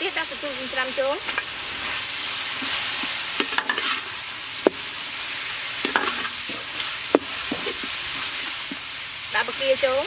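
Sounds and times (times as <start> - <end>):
meat sizzling in oil: 0.0 - 10.0
metal spatula scraping a pan: 1.2 - 8.9.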